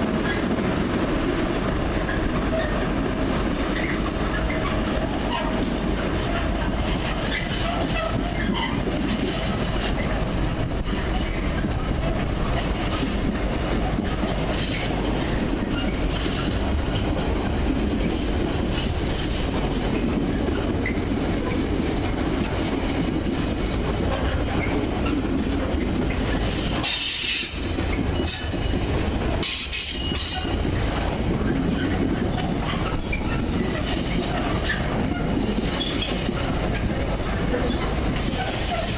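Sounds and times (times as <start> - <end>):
train rumbling: 0.0 - 38.9.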